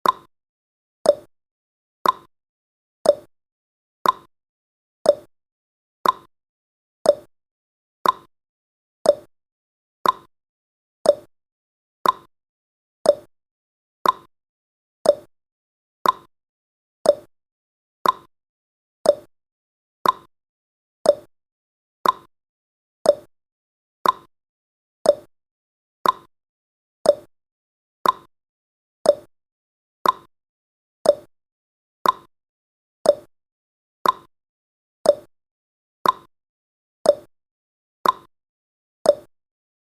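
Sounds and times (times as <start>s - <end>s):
clock ticking: 2.0s - 2.3s, 4.0s - 4.3s, 6.0s - 6.3s, 8.0s - 8.3s, 10.0s - 10.3s, 12.0s - 12.3s, 14.0s - 14.3s, 15.1s - 15.3s, 16.0s - 16.3s, 18.0s - 18.3s, 19.1s - 19.3s, 20.0s - 20.3s, 21.1s - 21.3s, 22.0s - 22.3s, 24.0s - 24.3s, 26.0s - 26.3s, 28.0s - 28.3s, 29.1s - 29.3s, 30.0s - 30.3s, 31.1s - 31.3s, 32.0s - 32.3s, 33.1s - 33.3s, 34.0s - 34.3s, 35.1s - 35.3s, 36.0s - 36.3s, 38.0s - 38.3s, 39.1s - 39.3s.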